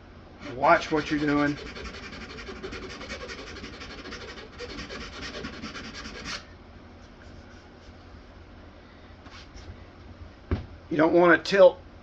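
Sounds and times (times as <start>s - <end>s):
file rasping on wood: 0.4s - 6.4s.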